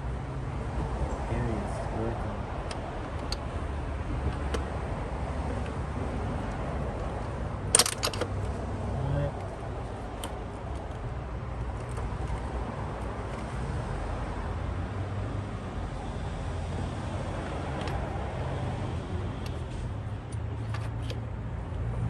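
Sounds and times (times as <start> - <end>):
low background rumble and hum: 0.0 - 22.0.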